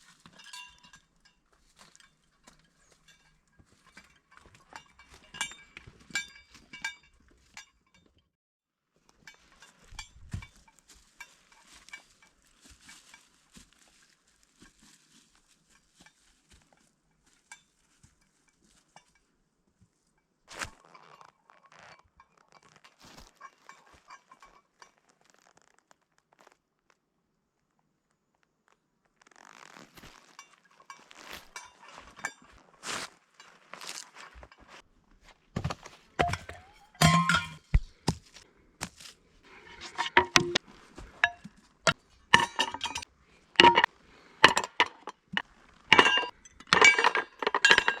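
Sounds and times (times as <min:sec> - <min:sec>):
metallic clinks and clicks: 0:00.0 - 0:08.2, 0:36.2 - 0:37.8, 0:39.6 - 0:40.6, 0:41.2 - 0:48.0.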